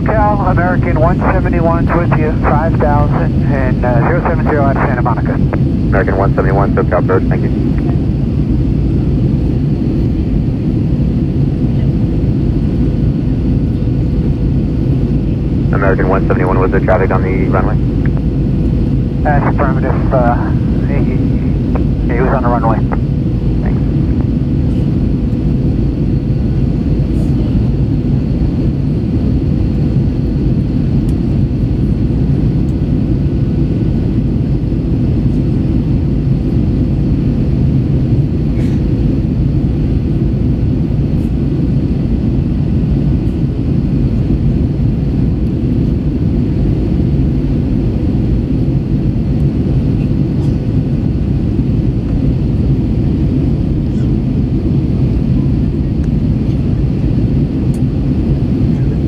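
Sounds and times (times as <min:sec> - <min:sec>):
faint steady hum: 0:00.0 - 0:10.8, 0:11.4 - 0:38.3
airplane cabin engine noise: 0:00.0 - 0:59.0.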